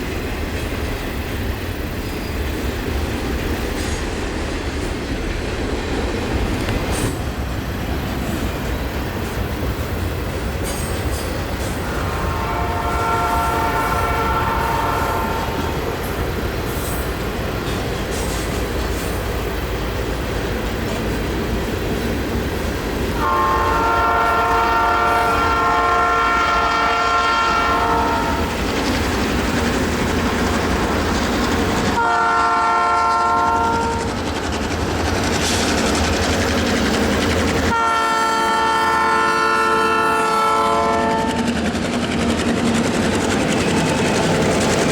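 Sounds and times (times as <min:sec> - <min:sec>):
passing train rumbling: 0:00.0 - 0:44.9
locomotive horn blasts: 0:11.8 - 0:15.9, 0:23.2 - 0:28.5, 0:32.0 - 0:34.0, 0:37.7 - 0:41.5
wheel clatter on rails: 0:15.2 - 0:22.9, 0:27.9 - 0:32.0, 0:33.8 - 0:37.8, 0:41.4 - 0:44.9.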